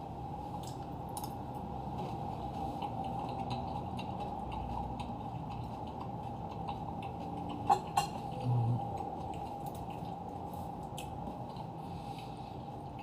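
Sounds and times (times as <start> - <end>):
low background hum: 0.0 - 13.0
cutlery clicking against a dish: 7.6 - 8.3.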